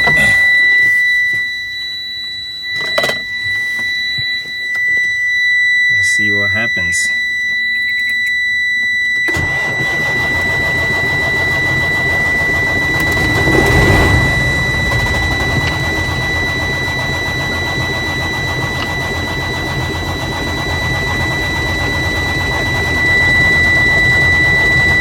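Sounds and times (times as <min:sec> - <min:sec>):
high-pitched warning buzzer: 0:00.0 - 0:25.0
truck engine cranking on starter: 0:09.3 - 0:25.0.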